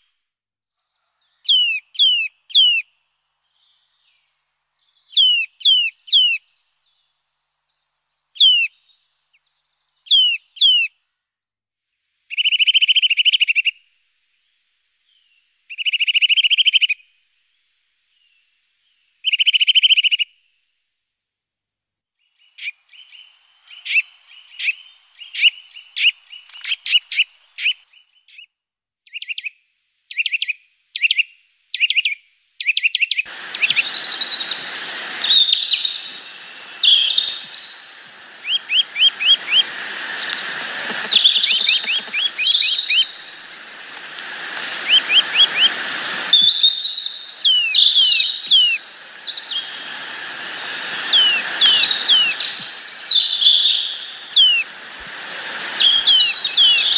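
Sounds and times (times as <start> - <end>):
songbirds chirping: 0.8 - 10.9, 22.2 - 28.5, 32.6 - 56.9
steady outdoor hiss: 0.8 - 28.4, 29.1 - 56.9.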